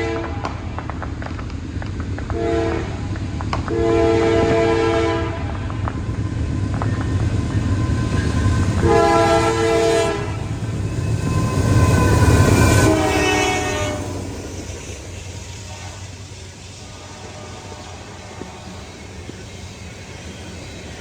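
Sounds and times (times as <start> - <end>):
locomotive air horn blasts: 0.0 - 0.6, 2.3 - 3.1, 3.7 - 5.7, 8.1 - 14.3, 15.6 - 16.2
passing train rumble: 0.0 - 21.0.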